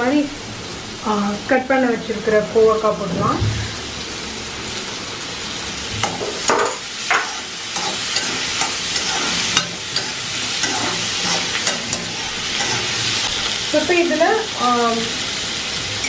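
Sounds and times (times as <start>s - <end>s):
vegetables frying in oil: 0.0s - 16.0s
metal spatula scraping pan: 6.0s - 13.4s.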